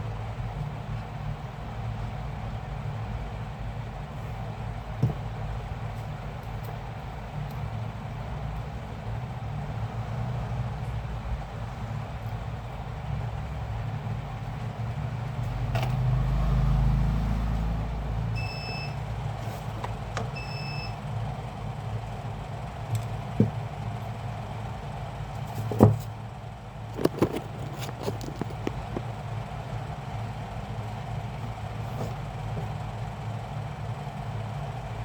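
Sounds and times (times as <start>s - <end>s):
low rumble of traffic: 0.0s - 35.0s
sharp clicks and knocks: 27.0s - 29.1s.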